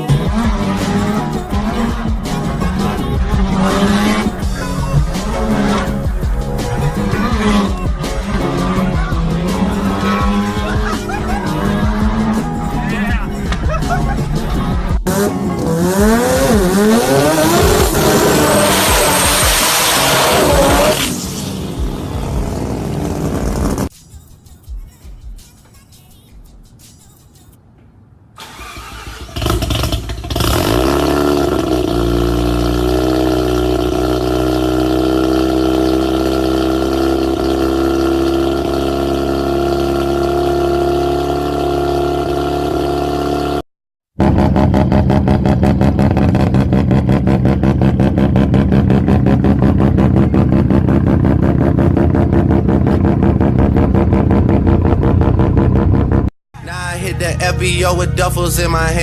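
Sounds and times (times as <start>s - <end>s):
car idling with rapid exhaust pulse: 0.1s - 14.7s, 44.2s - 56.3s
rotary engine starting and idling: 28.4s - 31.9s.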